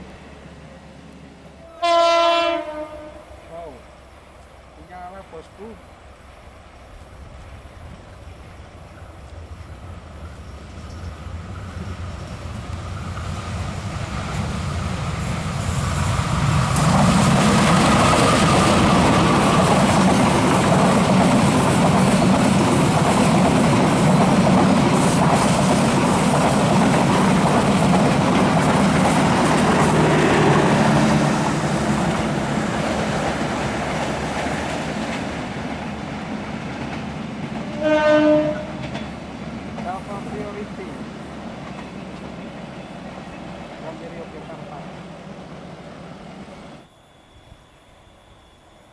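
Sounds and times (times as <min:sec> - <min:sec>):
train wheels clattering over rails: 0:09.0 - 0:44.8.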